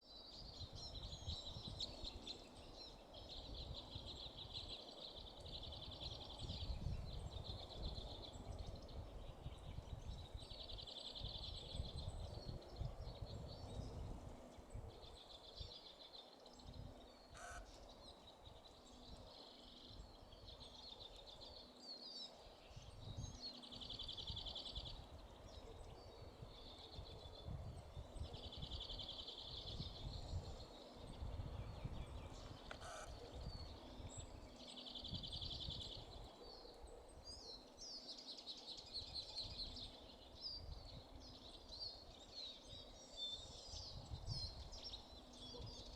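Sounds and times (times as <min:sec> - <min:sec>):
songbird trilling: 0:17.4 - 0:17.9, 0:32.4 - 0:34.0.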